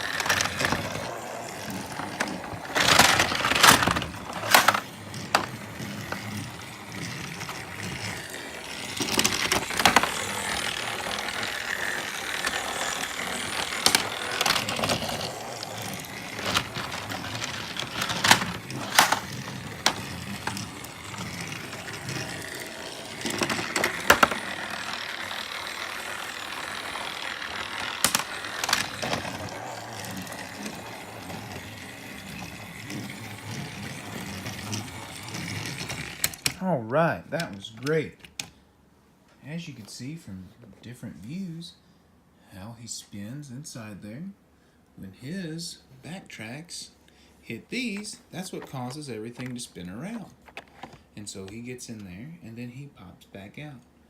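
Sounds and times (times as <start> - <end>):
clicks and clatters on plastic track: 0.0 - 36.6, 48.0 - 52.1
toy train motor whirr: 0.0 - 36.7.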